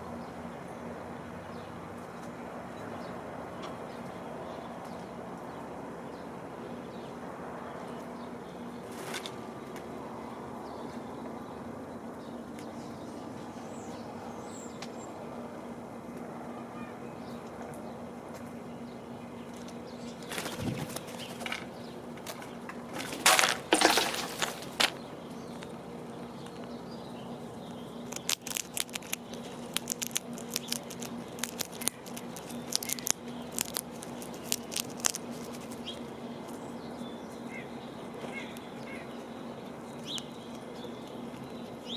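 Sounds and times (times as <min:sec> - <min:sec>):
animal landing on bird feeder: 0:22.3 - 0:25.0
animal munching seeds: 0:27.6 - 0:36.0.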